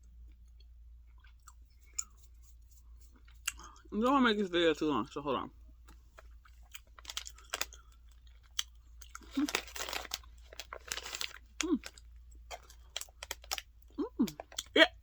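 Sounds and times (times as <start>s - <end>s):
plastic packaging crinkling: 6.2s - 14.6s.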